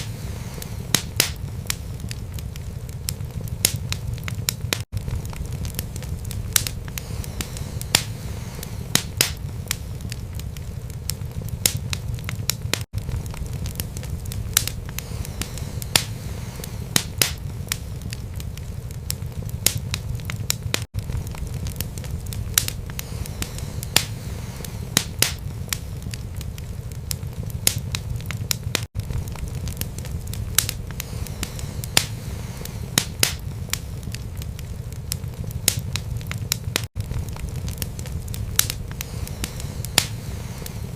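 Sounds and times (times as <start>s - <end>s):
fire crackling and popping: 0.0s - 40.9s
low rumble of flames: 0.0s - 40.9s.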